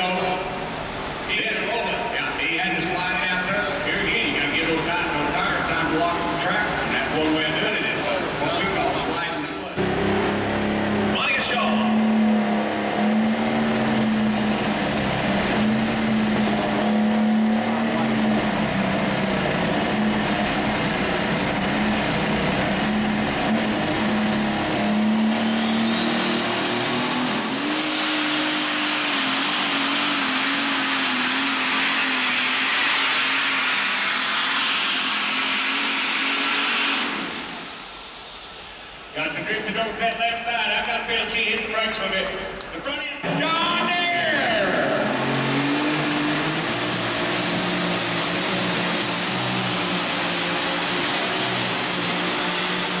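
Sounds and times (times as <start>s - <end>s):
pulling tractor engine full throttle: 0.0s - 53.0s
high turbo whistle: 25.0s - 39.2s.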